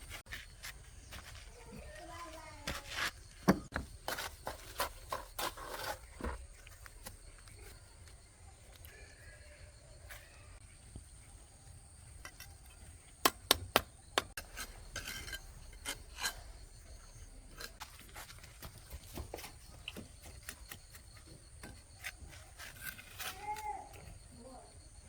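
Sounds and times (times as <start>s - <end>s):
scraping of hard objects: 0.0s - 6.7s, 14.3s - 24.2s.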